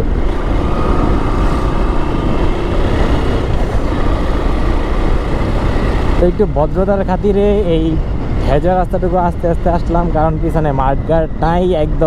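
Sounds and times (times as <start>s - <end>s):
motorcycle engine: 0.0s - 8.6s
wind rush on microphone: 0.0s - 12.0s.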